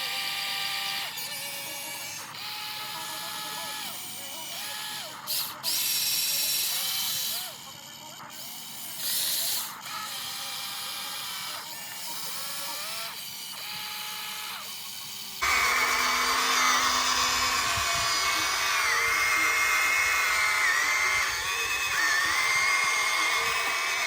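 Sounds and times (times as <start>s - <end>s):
small electric motors whining: 0.0s - 24.0s
loud high whine: 15.4s - 24.0s.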